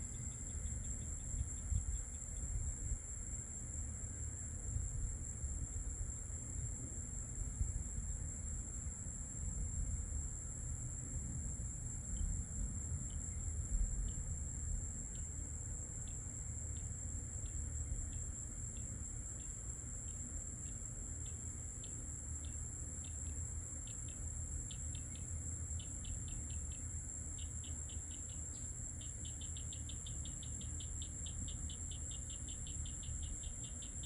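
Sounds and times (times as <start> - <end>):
insect chirping: 0.0 - 34.0
high-pitched insect drone: 27.4 - 34.0.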